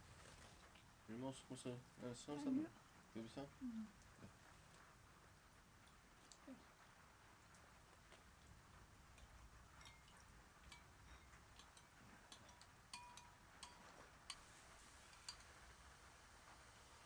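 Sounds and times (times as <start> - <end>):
kitchen utensils and dishes clinking: 9.2 - 15.6.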